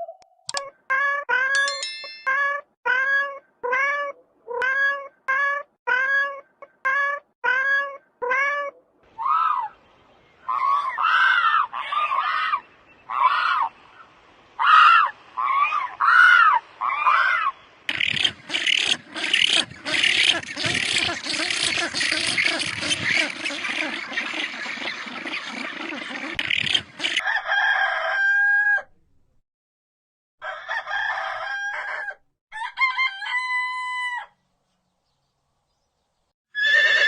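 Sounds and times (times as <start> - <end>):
animal calls: 14.6 - 27.2.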